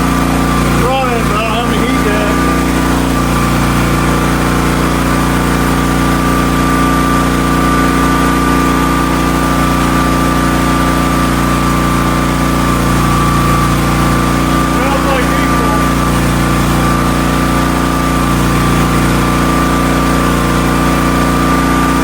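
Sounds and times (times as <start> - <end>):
pressure washer engine running: 0.0 - 22.0.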